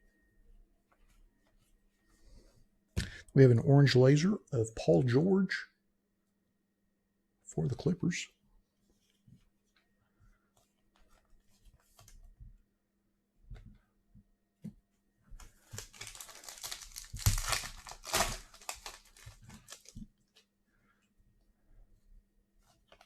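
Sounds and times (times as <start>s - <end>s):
wrapper tearing and crinkling: 15.6s - 20.0s.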